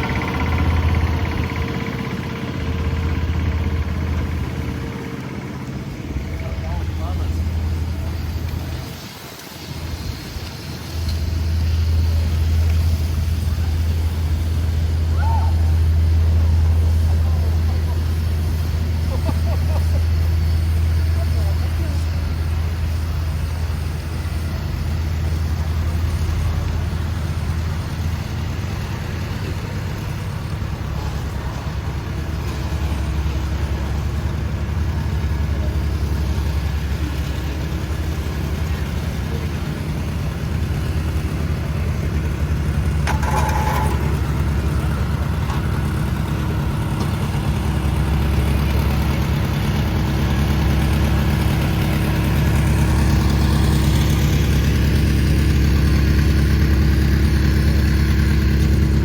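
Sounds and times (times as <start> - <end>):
vehicle engine rumbling: 0.0 - 59.0.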